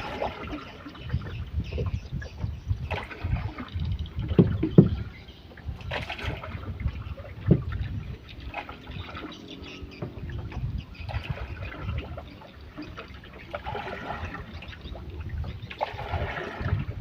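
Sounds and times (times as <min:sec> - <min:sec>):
water splashing against boat: 0:00.0 - 0:17.0
hollow knocks on hull: 0:04.2 - 0:05.1.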